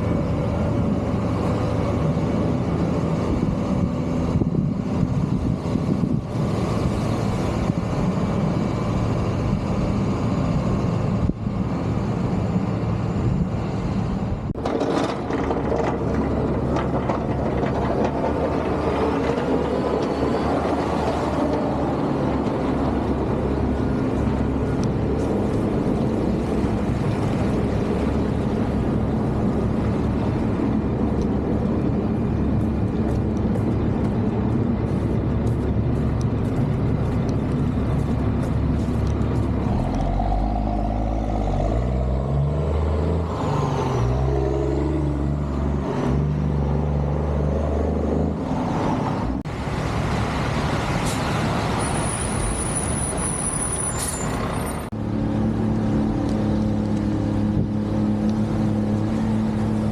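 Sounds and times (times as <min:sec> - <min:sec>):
diesel machinery running: 0:00.0 - 0:59.9.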